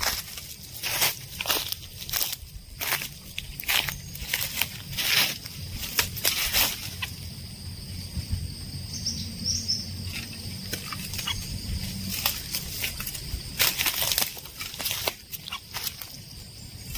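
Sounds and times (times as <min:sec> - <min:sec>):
rustling and crackling: 0:00.0 - 0:07.3, 0:10.1 - 0:16.9
faint bird chirps: 0:08.9 - 0:11.8.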